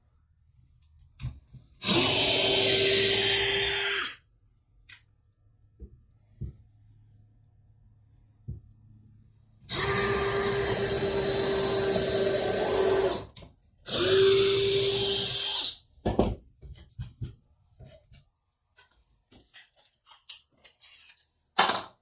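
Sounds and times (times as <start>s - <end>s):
power drill whining: 1.8s - 4.2s, 9.7s - 15.8s.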